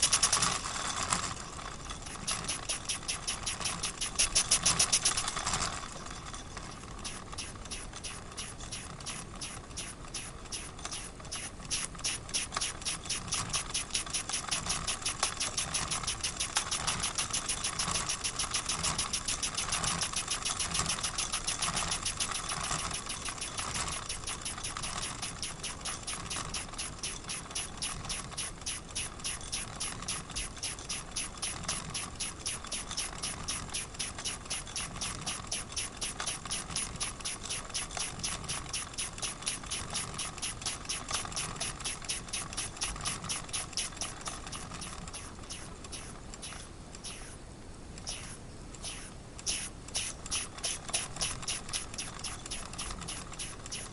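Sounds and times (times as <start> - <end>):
model steam engine chuffing: 0.0 - 47.4, 48.1 - 53.9
steam hissing: 7.0 - 47.4, 48.1 - 53.9.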